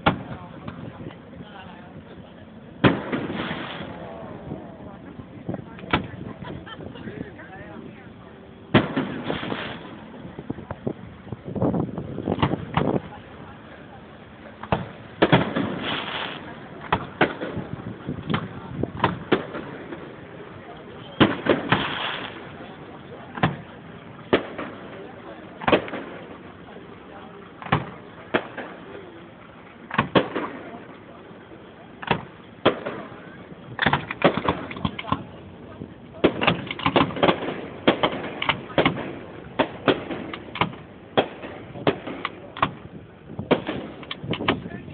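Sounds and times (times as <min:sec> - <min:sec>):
fireworks crackling hiss: 0:02.8 - 0:04.4, 0:08.8 - 0:10.9, 0:14.7 - 0:20.6, 0:21.2 - 0:26.8
fireworks bangs: 0:02.8 - 0:04.7, 0:08.7 - 0:10.8, 0:14.6 - 0:29.2, 0:29.9 - 0:30.9, 0:32.0 - 0:44.9.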